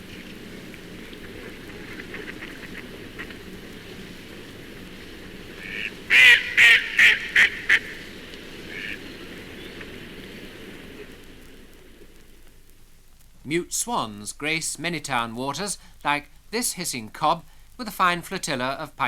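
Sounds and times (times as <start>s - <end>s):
duck quacking: 5.6s - 8.0s, 8.7s - 9.0s.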